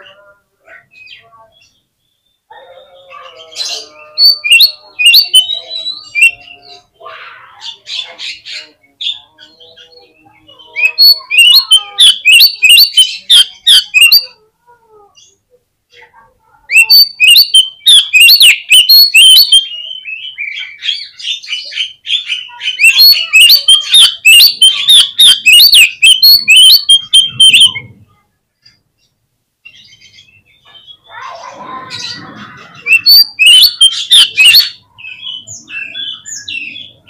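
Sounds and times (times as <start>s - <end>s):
faint bird calls: 0.0s - 37.0s
magpie-robin singing sharp notes: 3.2s - 6.9s, 7.9s - 14.3s, 16.7s - 27.9s, 32.8s - 37.0s.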